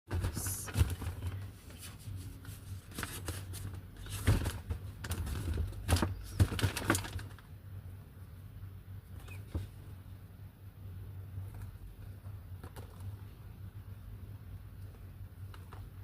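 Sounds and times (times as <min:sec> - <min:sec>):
packaging knocks and rustling: 0:03.0 - 0:07.4.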